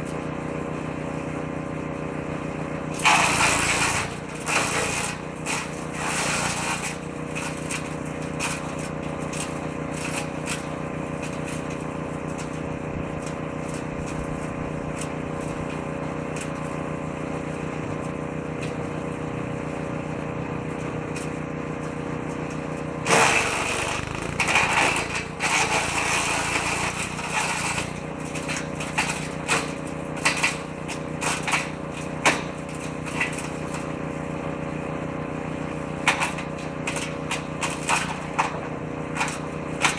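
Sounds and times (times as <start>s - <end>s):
woodchipper engine running: 0.1s - 39.8s
shredder chewing wood: 3.0s - 7.8s, 23.1s - 28.5s.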